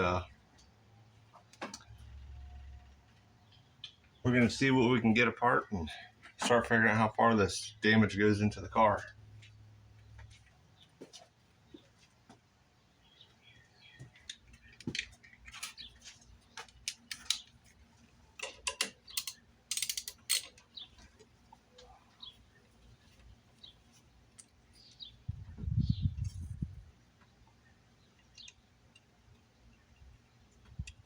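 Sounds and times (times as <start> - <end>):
tools and parts clattering: 18.3 - 21.3.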